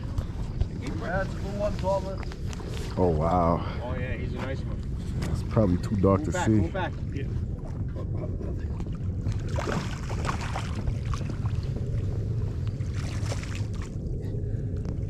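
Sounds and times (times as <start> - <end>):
faint crackles: 0.0 - 3.7
wind buffeting microphone: 0.0 - 15.0.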